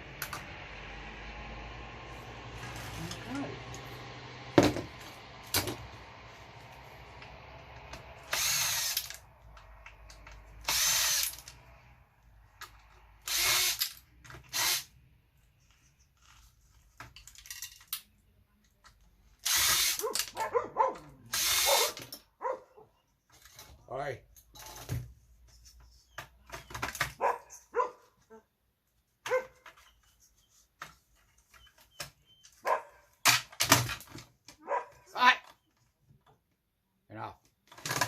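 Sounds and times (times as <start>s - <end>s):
cordless drill bursts: 8.2s - 9.2s, 10.6s - 11.6s, 13.2s - 14.9s, 19.4s - 20.0s, 21.3s - 22.0s
small clicks and handling noises: 15.4s - 19.4s.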